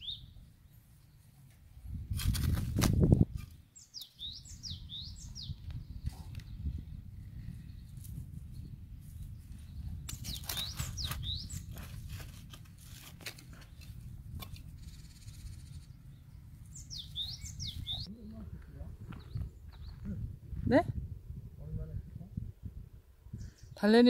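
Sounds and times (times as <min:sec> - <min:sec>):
songbird chirping: 0:00.0 - 0:01.6, 0:03.4 - 0:12.0, 0:13.5 - 0:18.4, 0:19.1 - 0:20.2
hand weeder digging in soil: 0:02.1 - 0:03.6.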